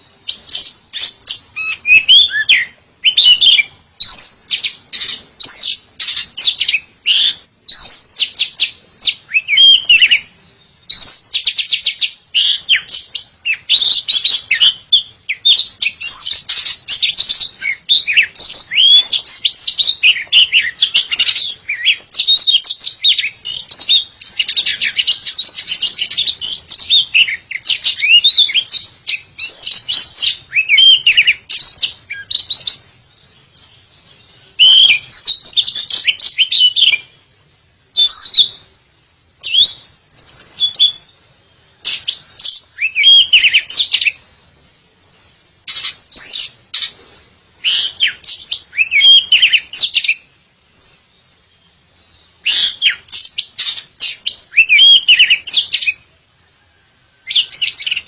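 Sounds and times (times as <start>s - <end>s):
bird singing whistles and chirps: 0.0s - 38.8s, 39.4s - 58.0s.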